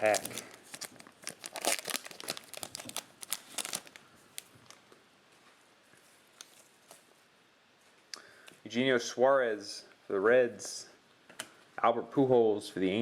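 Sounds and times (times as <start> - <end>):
plastic wrapper crinkling: 0.0 - 5.0.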